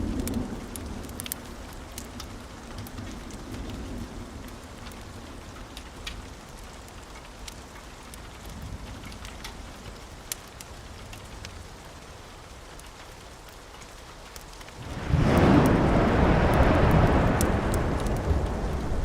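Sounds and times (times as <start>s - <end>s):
rain falling on roof: 0.0s - 19.0s
low rumble: 14.8s - 19.0s.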